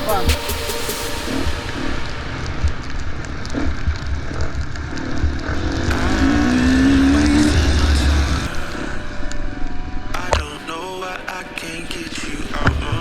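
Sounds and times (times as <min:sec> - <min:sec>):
dirt bike engine revving: 0:03.6 - 0:08.5.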